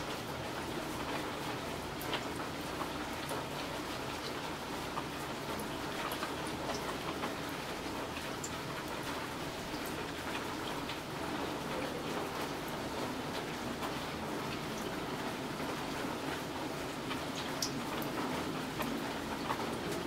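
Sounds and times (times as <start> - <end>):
steady rain hiss: 0.0 - 20.0
raindrops clicking: 17.0 - 20.0.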